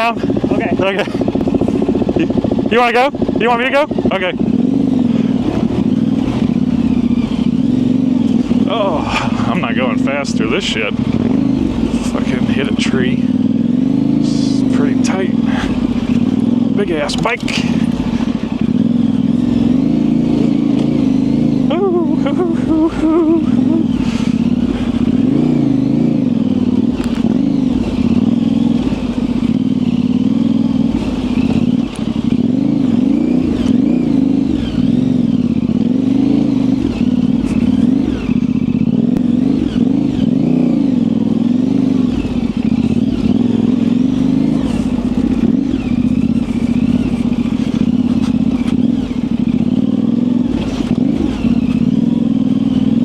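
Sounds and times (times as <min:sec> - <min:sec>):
motorcycle knocking and clattering: 0:00.0 - 0:09.6, 0:26.3 - 0:53.0
motorcycle engine at low revs: 0:00.0 - 0:53.0.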